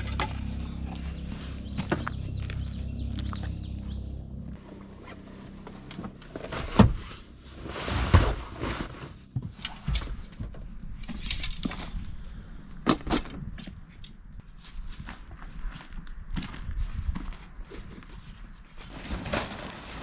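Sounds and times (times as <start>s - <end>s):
handling clicks and knocks: 9.5s - 14.4s.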